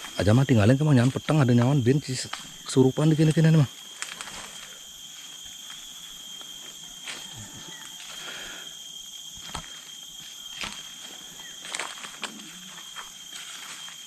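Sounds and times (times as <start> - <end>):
insect chorus: 0.0 - 14.0
faint clicks and rustles: 3.8 - 4.8.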